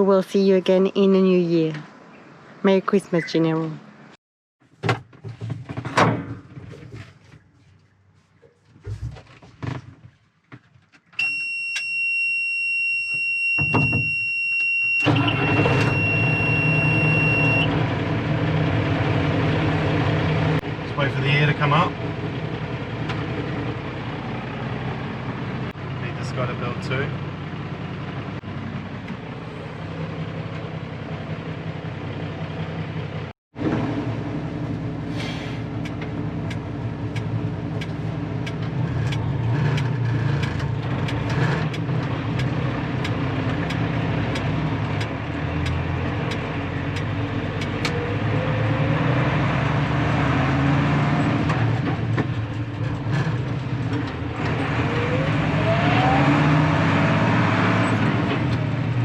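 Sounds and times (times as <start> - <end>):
diesel truck engine accelerating: 14.9 - 59.0.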